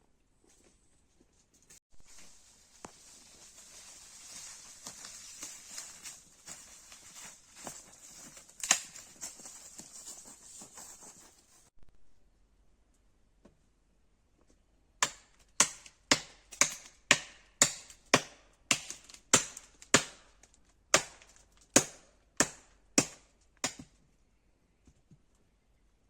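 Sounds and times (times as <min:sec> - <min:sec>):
axe chopping wood: 0:08.6 - 0:09.0, 0:15.0 - 0:24.0.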